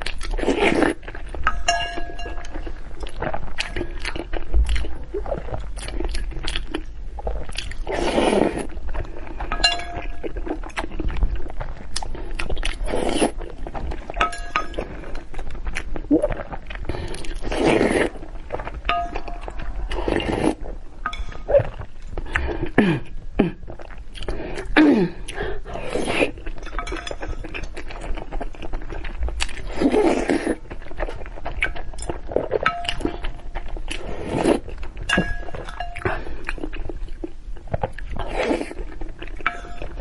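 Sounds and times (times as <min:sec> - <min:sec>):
person chewing: 0:00.0 - 0:40.0
utensils clinking against bowl: 0:01.4 - 0:02.8, 0:09.5 - 0:10.4, 0:14.2 - 0:15.3, 0:21.1 - 0:21.5, 0:26.5 - 0:27.7, 0:35.1 - 0:36.3, 0:39.4 - 0:40.0.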